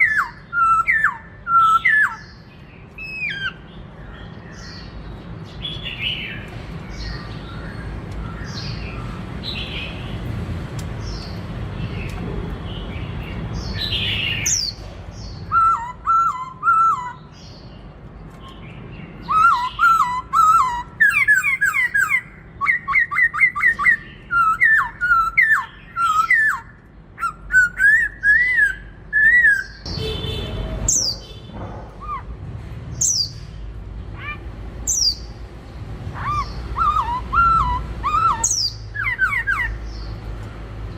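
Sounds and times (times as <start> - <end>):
bird singing whistled phrases: 0.0 - 2.3, 15.4 - 17.3, 19.2 - 29.9, 36.2 - 39.8
bird calls: 0.0 - 10.3, 11.0 - 40.5.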